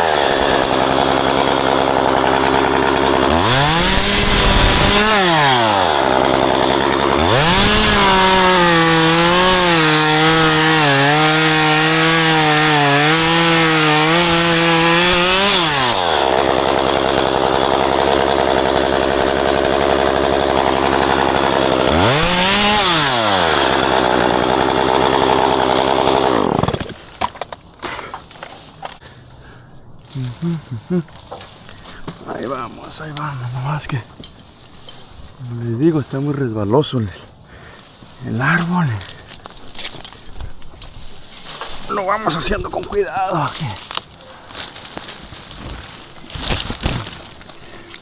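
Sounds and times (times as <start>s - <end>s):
chainsaw revving and cutting: 0.0s - 28.0s, 41.6s - 48.0s.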